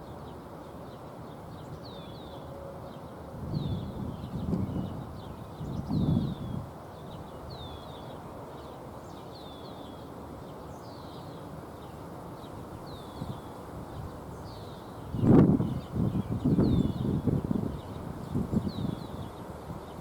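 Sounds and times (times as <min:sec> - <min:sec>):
outdoor background hiss: 0:00.0 - 0:20.0
bird chirping: 0:10.6 - 0:19.5.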